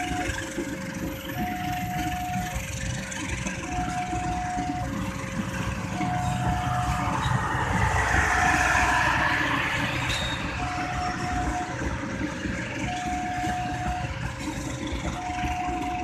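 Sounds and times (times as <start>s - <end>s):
level crossing warning alarm: 0.0s - 16.0s
low rumble of vehicle engines: 0.0s - 16.0s
loud rushing noise: 5.6s - 12.0s.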